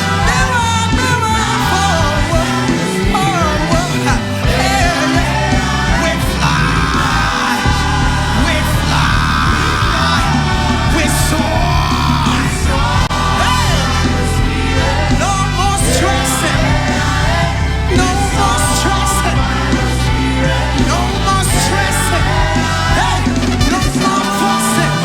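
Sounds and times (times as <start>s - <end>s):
live band playing: 0.0s - 25.0s
person singing: 0.0s - 25.0s
shouted vocal lines: 0.0s - 25.0s.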